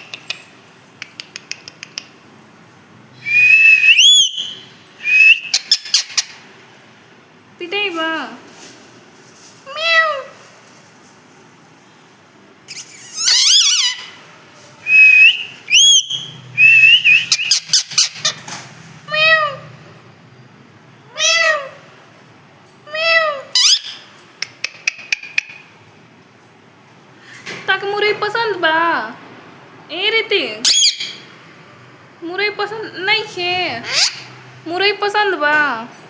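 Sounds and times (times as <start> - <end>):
parrot whistling: 3.2 - 6.3, 12.7 - 14.2, 14.8 - 18.3, 30.6 - 31.2
parrot meowing: 9.7 - 10.4, 13.1 - 14.2, 21.1 - 21.8.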